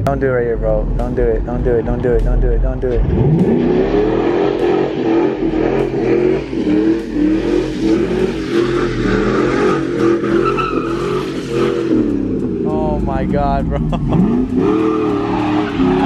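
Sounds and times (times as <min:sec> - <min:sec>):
car engine revving: 0:00.0 - 0:16.0
spinning tyres rushing: 0:00.0 - 0:16.0.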